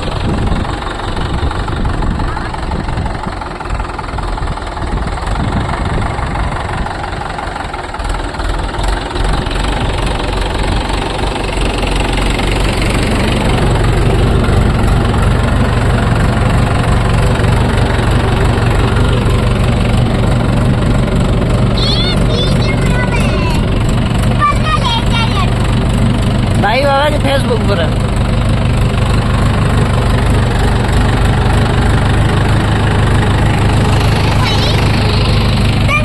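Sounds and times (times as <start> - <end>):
tractor diesel engine under load: 0.0 - 36.0.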